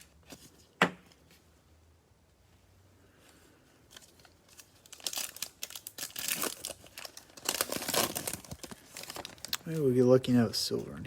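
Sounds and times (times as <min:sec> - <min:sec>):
plastic wrapper tearing and crinkling: 0:03.9 - 0:10.0.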